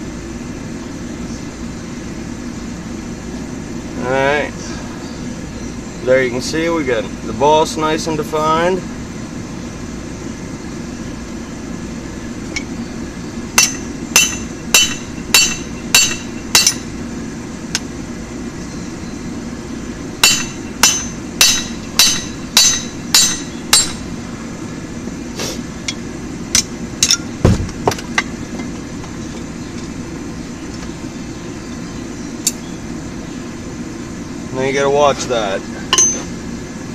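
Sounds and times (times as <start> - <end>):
low hum: 8.8 - 34.6
hammer striking steel on anvil: 13.6 - 16.9, 20.2 - 24.0, 35.9 - 36.3.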